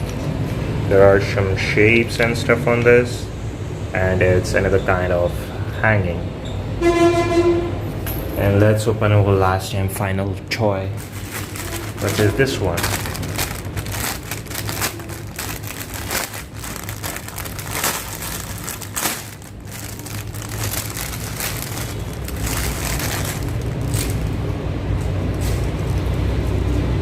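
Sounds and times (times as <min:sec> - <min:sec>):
plastic packaging crinkling: 0:10.9 - 0:24.5, 0:25.2 - 0:26.3
low rumble: 0:12.8 - 0:24.9.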